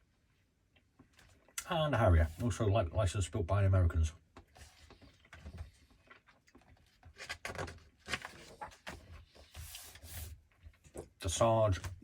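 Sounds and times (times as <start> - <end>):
book pages turning: 4.5 - 11.0.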